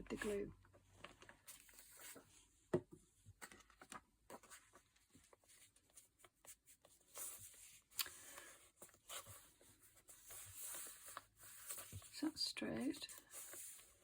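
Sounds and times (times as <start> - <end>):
paper taps and crinkles: 0.0 - 12.3
paper brushing strokes: 12.9 - 14.0.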